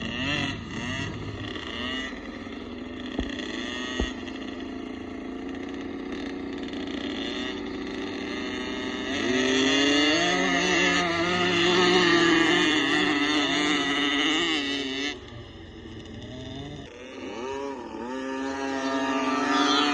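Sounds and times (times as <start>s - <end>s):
motocross bike engines revving: 0.0s - 19.9s.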